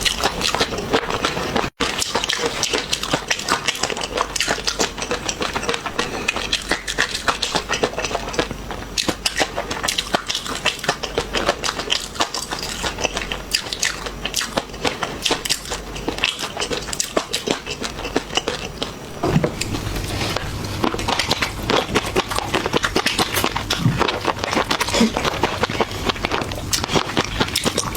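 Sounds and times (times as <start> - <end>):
crunchy food being chewed: 0.0 - 27.9
low hum: 19.0 - 23.8.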